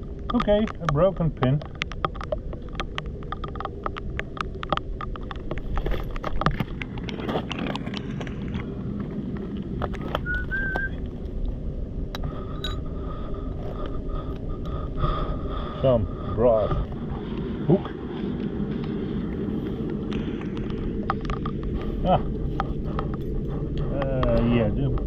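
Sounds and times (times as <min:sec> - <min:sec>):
steady low rumble: 0:00.0 - 0:25.0
small clicks and taps: 0:00.2 - 0:08.6
whistled call: 0:10.2 - 0:11.0.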